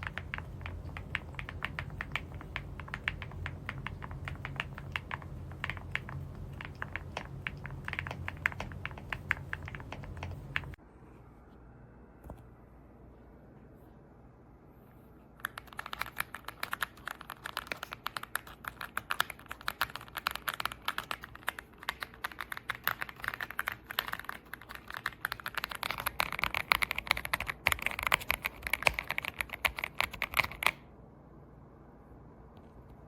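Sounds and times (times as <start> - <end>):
mechanical keyboard typing: 0.0 - 10.8, 15.4 - 30.8.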